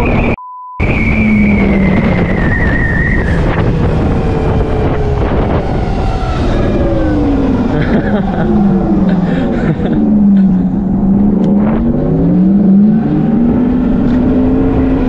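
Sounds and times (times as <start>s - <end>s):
short beep: 0.0s - 1.7s
wind noise: 0.0s - 15.0s.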